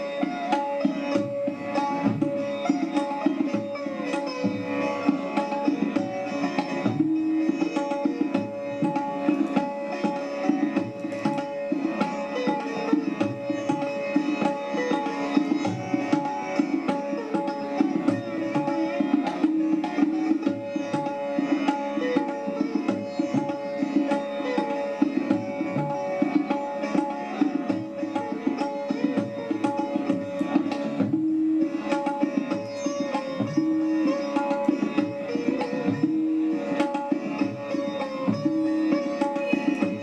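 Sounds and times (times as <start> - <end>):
hand drum percussion: 0.0 - 40.0
plucked strings: 0.0 - 40.0.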